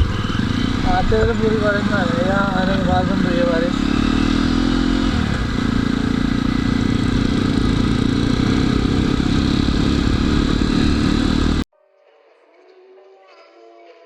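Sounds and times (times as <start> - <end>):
wind and road noise: 0.0 - 11.6
motorcycle engine running: 0.0 - 11.7
faint background music: 11.7 - 14.0.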